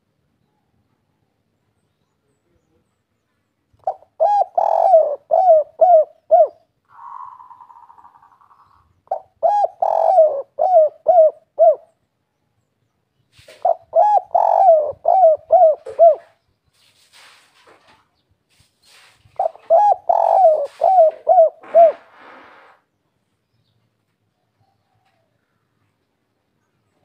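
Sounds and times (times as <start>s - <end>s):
dove cooing: 3.8s - 12.0s, 13.4s - 16.4s, 19.4s - 22.7s.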